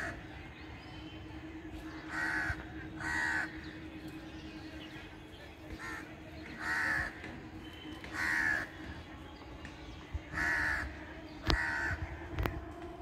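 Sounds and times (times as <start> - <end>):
bird calling: 0.0 - 9.0.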